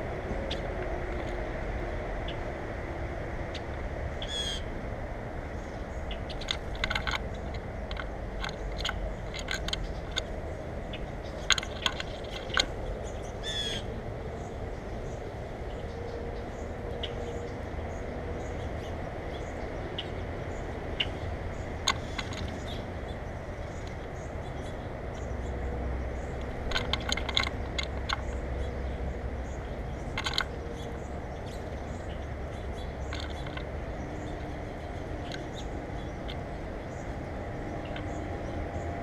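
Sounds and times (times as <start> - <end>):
low outdoor rumble: 0.0 - 39.0
bird chirps: 13.0 - 26.4.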